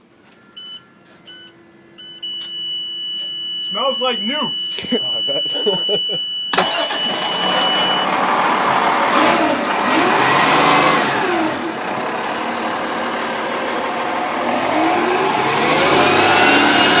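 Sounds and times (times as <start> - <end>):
diesel engine revving: 3.7 - 17.0.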